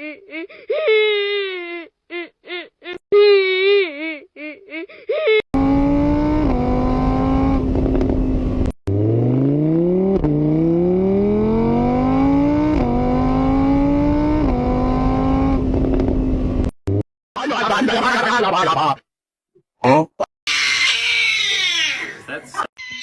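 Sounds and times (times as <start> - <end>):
vehicle engine accelerating: 5.6 - 17.0.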